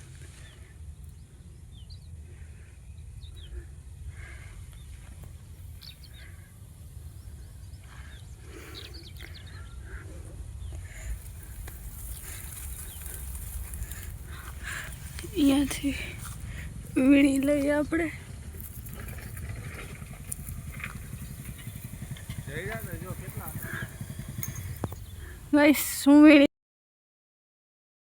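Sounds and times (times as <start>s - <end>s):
steady low rumble: 0.0s - 26.1s
small birds chirping: 0.0s - 26.5s
high hiss: 20.3s - 26.3s.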